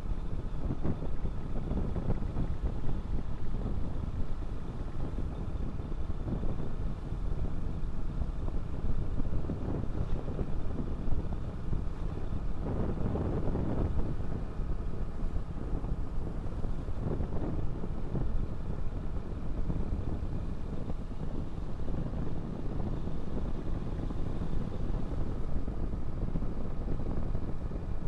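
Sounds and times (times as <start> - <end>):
wind rush on microphone: 0.0 - 28.0
road noise: 6.8 - 28.0.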